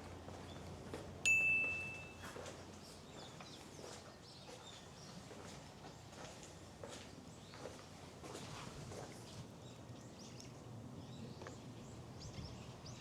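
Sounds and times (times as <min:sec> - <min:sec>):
faint outdoor ambience: 0:00.0 - 0:13.0
high bell ding: 0:01.3 - 0:02.3.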